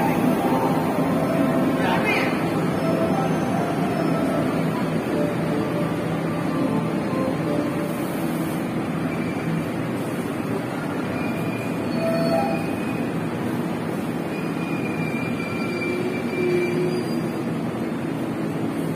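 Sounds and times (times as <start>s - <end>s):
faint high-pitched wheel squeals: 10.9s - 13.1s, 14.3s - 17.5s.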